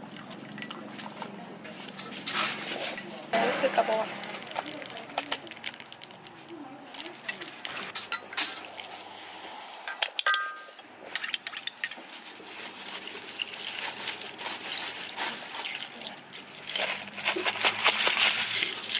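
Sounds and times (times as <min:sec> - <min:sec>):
cups and utensils clinking: 0:07.0 - 0:08.8, 0:09.9 - 0:12.2
liquid pouring: 0:12.8 - 0:18.9.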